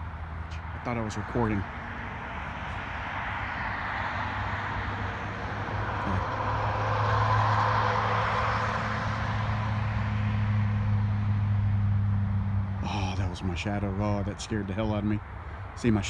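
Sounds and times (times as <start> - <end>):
low traffic hum: 0.0 - 16.0
vehicle passing: 0.0 - 16.0.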